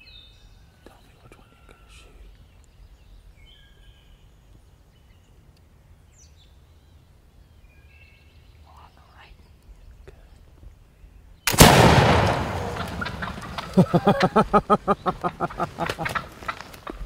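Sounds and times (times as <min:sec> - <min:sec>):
faint soft clicks: 0:02.3 - 0:02.8
low rumble: 0:11.6 - 0:15.8.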